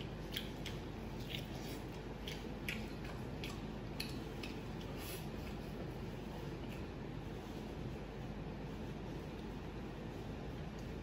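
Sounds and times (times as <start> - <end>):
man chewing food: 0.0 - 7.4
low background hum: 0.0 - 11.0.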